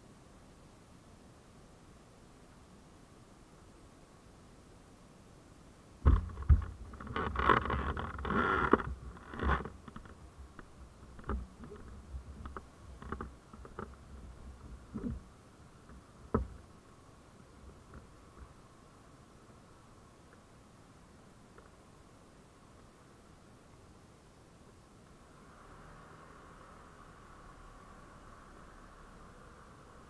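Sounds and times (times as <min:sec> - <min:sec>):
rustling: 0:06.0 - 0:18.7
knocks and clicks: 0:06.1 - 0:14.0.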